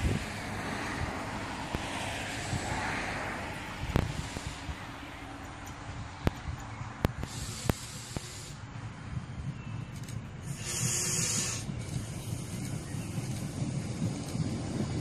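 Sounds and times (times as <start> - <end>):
diesel railcar rumble: 0.0 - 15.0
high hiss bursts: 3.8 - 4.9, 7.1 - 8.7, 10.4 - 14.5
sharp clicks: 5.4 - 8.3.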